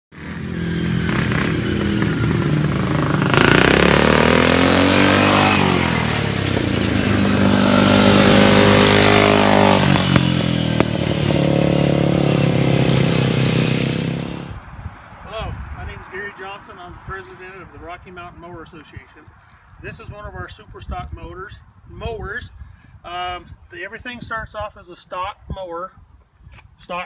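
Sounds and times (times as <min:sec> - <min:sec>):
small engine revving: 0:00.1 - 0:14.6.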